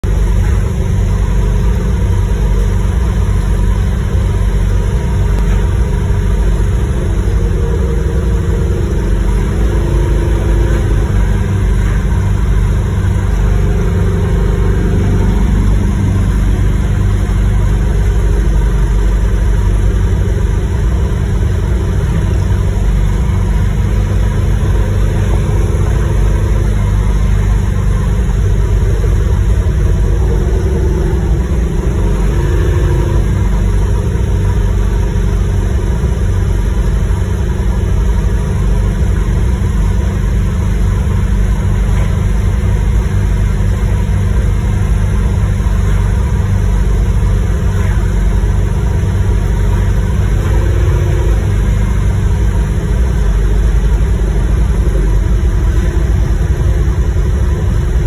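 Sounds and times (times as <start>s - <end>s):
car engine rumble: 0.0s - 58.0s
road noise: 0.0s - 58.0s.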